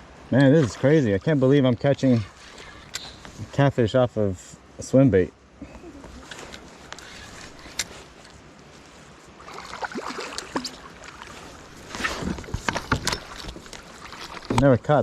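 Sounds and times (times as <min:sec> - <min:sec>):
water sloshing against kayak: 0:00.4 - 0:03.5, 0:06.1 - 0:14.7.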